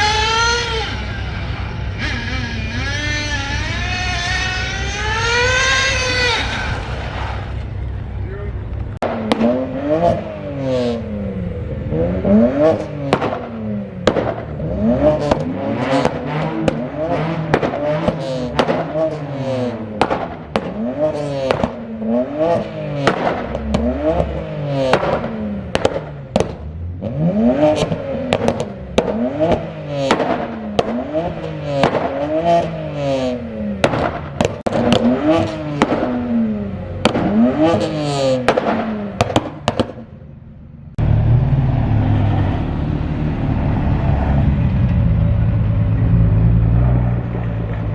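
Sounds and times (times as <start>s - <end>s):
car engine revving: 0.0s - 47.9s
exhaust cracking and popping: 12.8s - 21.9s, 22.5s - 26.8s, 27.6s - 32.7s, 33.8s - 36.4s, 37.0s - 40.1s.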